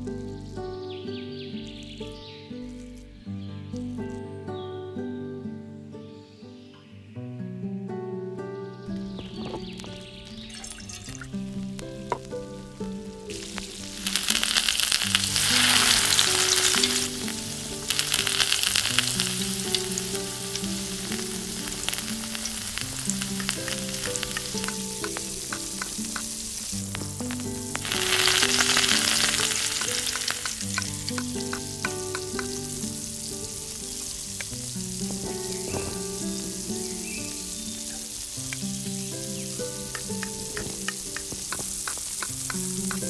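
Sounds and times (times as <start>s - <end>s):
light background music: 0.0s - 43.0s
vegetables sizzling in hot oil: 9.2s - 43.0s.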